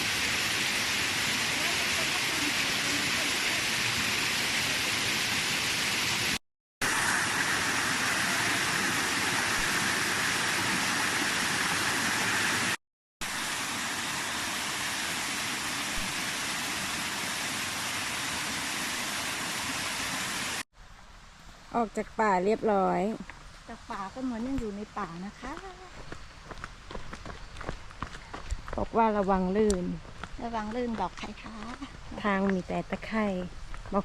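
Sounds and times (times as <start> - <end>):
waterfall rushing: 0.0 - 20.6.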